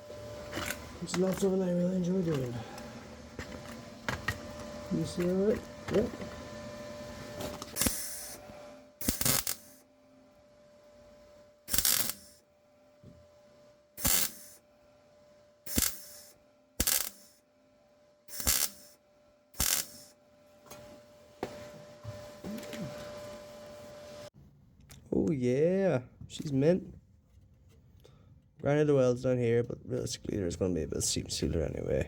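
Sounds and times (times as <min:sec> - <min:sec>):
faint steady hum: 0:00.0 - 0:26.8
welder crackling: 0:00.5 - 0:02.9, 0:07.6 - 0:09.8, 0:11.7 - 0:12.4, 0:14.0 - 0:14.6, 0:15.7 - 0:17.4, 0:18.3 - 0:19.0, 0:19.6 - 0:20.2.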